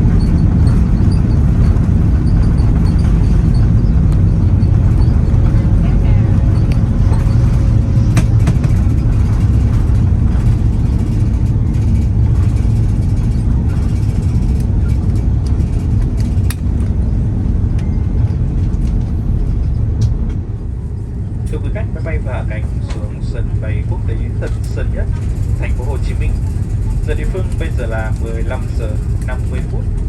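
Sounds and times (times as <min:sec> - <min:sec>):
airplane cabin low rumble: 0:00.0 - 0:30.0
cabin clicks and rattles: 0:06.6 - 0:17.0.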